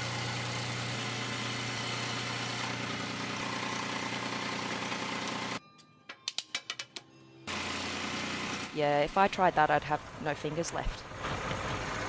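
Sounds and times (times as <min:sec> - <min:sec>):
power tool motor humming: 0:00.0 - 0:05.6, 0:07.5 - 0:08.8.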